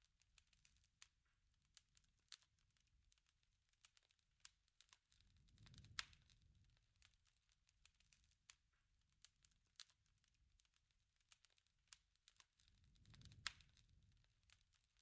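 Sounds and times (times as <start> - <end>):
wood fire crackling: 0.0 - 15.0
rush of flame: 5.3 - 6.6, 12.8 - 14.6.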